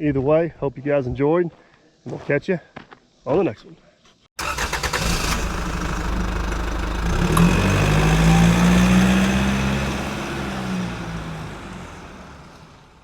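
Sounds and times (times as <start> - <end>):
diesel engine running: 4.4 - 13.0.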